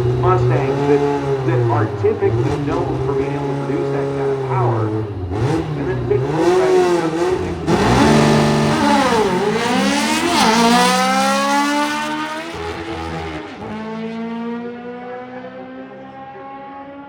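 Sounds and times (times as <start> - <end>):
drag race car engine accelerating: 0.0 - 17.0.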